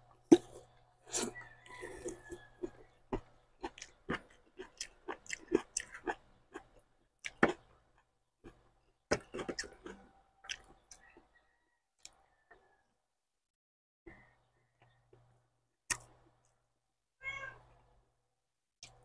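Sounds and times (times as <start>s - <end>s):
man chewing with wet mouth sounds: 0.0s - 11.3s.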